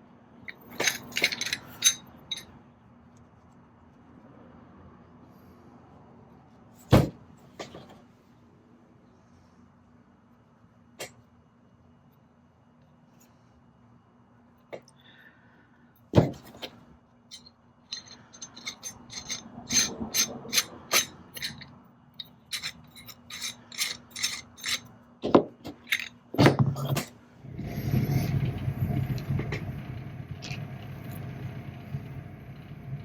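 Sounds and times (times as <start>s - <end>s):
rushing whirring noise: 27.4s - 33.0s.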